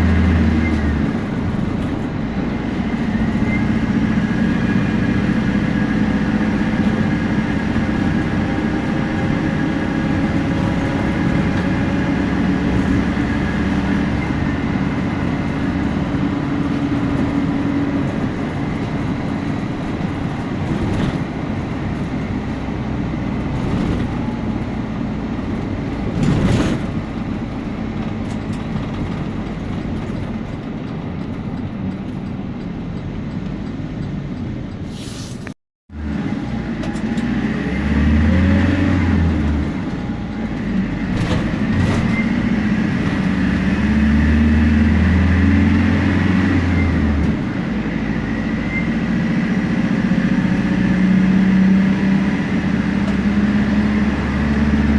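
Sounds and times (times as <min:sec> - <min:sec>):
bus diesel engine and turbo: 0:00.0 - 0:54.9
short rush of noise: 0:34.8 - 0:35.6.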